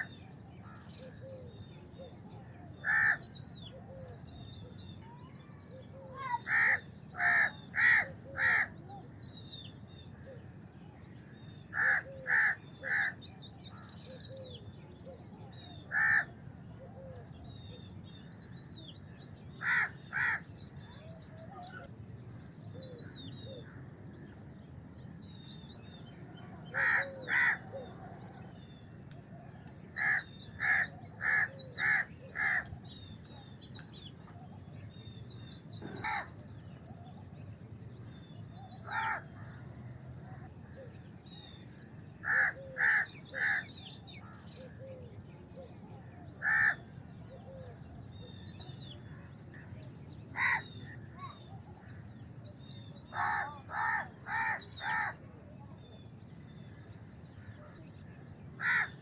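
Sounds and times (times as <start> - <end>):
small birds chirping: 0.0 - 10.3, 28.4 - 59.0
crow cawing: 2.8 - 3.2, 6.2 - 8.7, 11.7 - 13.2, 15.9 - 16.3, 19.6 - 20.4, 26.7 - 27.6, 30.0 - 32.7, 35.8 - 36.3, 38.8 - 39.3, 42.2 - 43.7, 46.4 - 46.8, 53.2 - 55.1, 58.6 - 59.0.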